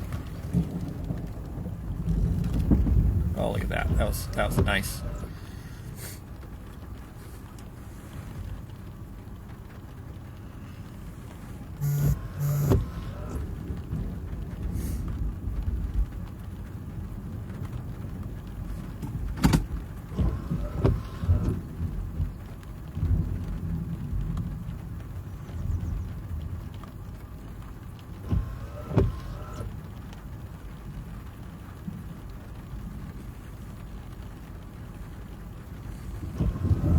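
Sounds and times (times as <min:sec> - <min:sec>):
low thunder rumble: 0:00.0 - 0:06.8, 0:13.1 - 0:20.7, 0:21.4 - 0:27.5, 0:31.8 - 0:36.9
steady rain: 0:00.0 - 0:36.9.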